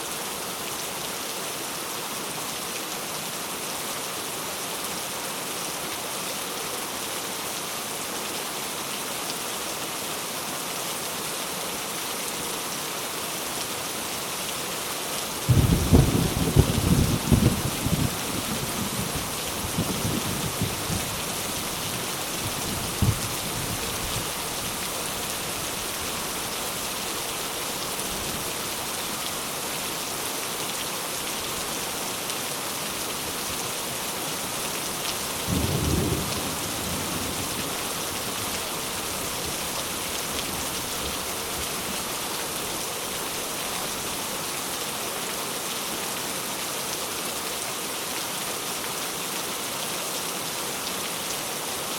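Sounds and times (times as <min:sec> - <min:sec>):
steady rain falling: 0:00.0 - 0:51.9
thunder rumbling: 0:15.5 - 0:21.1.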